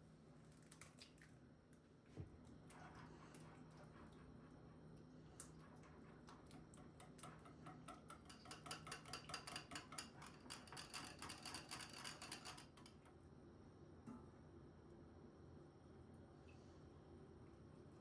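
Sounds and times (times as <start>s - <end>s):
utensil clinking against dish: 6.8s - 13.0s
faint steady hum: 12.6s - 18.0s.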